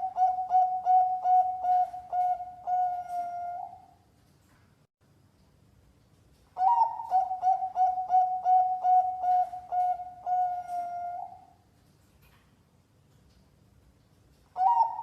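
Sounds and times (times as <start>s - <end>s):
dove cooing: 0.0s - 4.0s, 6.6s - 11.6s, 14.6s - 15.0s.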